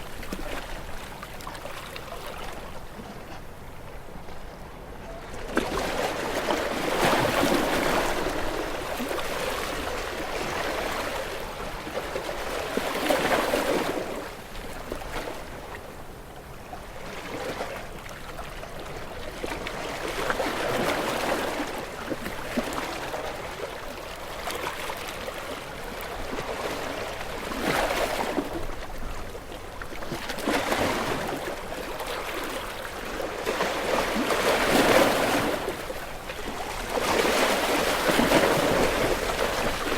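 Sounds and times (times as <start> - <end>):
sea waves washing against rocks: 30.3 - 39.9.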